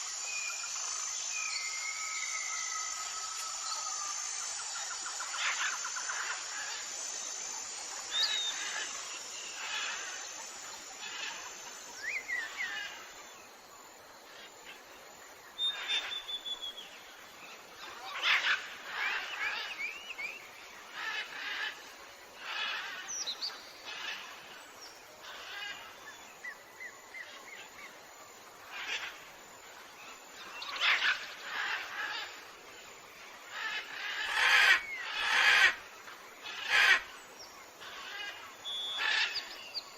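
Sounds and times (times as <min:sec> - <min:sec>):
jungle birds calling: 0:00.0 - 0:13.4, 0:15.6 - 0:39.9.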